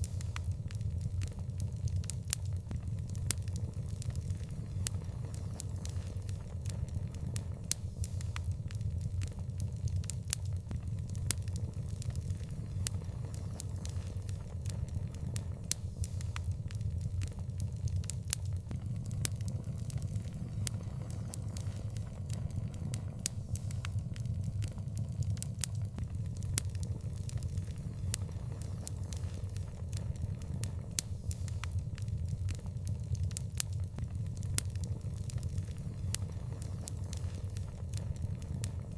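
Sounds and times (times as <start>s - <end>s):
fire crackling with pops: 0.0s - 38.9s
low rumble: 18.7s - 26.4s.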